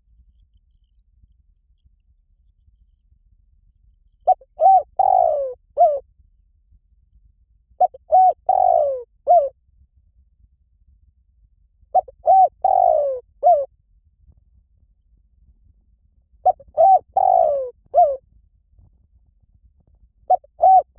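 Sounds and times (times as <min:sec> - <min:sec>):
dove cooing: 0:04.3 - 0:06.0, 0:07.8 - 0:09.5, 0:12.0 - 0:13.7, 0:16.4 - 0:18.2, 0:20.3 - 0:20.9.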